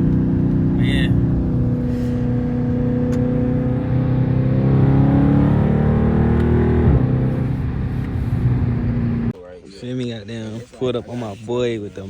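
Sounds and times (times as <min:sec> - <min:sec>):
car engine and exhaust: 0:00.0 - 0:09.4.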